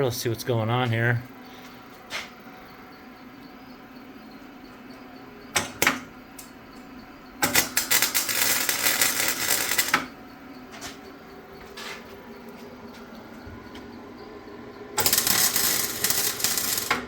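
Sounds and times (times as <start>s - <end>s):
welding arc crackling: 7.4s - 10.2s, 15.0s - 17.0s.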